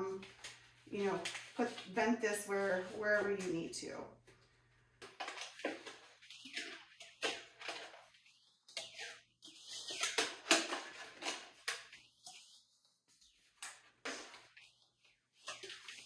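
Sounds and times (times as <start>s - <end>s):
plastic hose crinkling and clicking: 0.0s - 16.0s.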